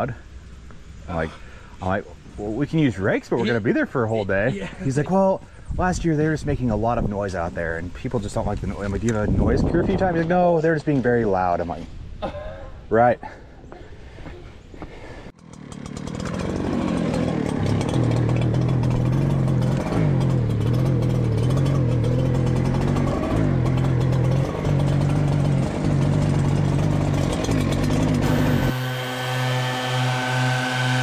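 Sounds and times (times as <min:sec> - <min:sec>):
leaf blower engine whine: 0:15.4 - 0:31.0.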